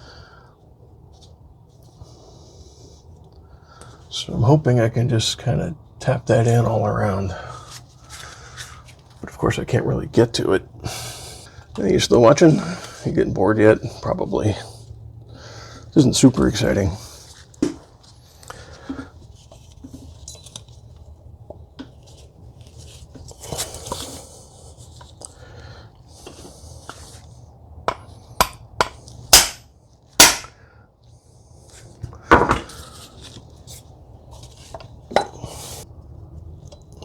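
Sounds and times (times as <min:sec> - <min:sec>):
handling and scraping: 0:16.4 - 0:25.4, 0:26.1 - 0:29.3, 0:31.6 - 0:35.9.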